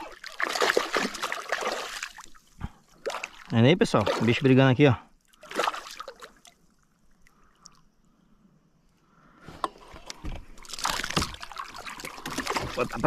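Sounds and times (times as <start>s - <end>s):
fish splashing in water: 0.0s - 2.4s, 3.0s - 4.5s, 5.4s - 6.8s, 10.6s - 13.0s.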